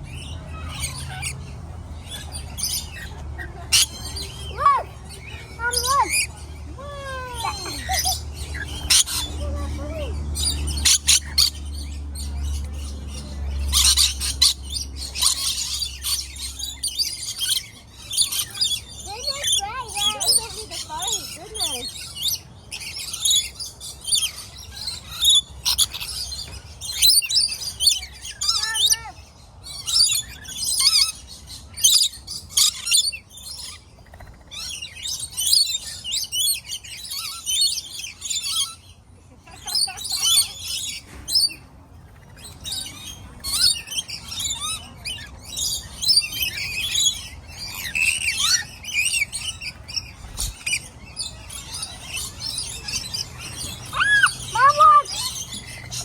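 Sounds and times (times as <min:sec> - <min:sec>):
flock of birds chirping: 0:00.0 - 0:56.0.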